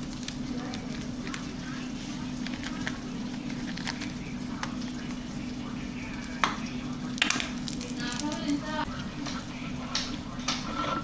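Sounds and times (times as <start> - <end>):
steady low hum: 0.0 - 11.0
utensil scraping a pan: 10.5 - 11.0.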